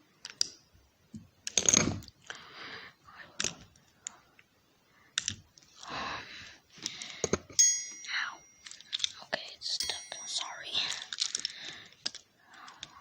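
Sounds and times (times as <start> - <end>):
small plastic clicks and knocks: 0.2 - 2.3, 3.4 - 4.2, 5.2 - 5.7.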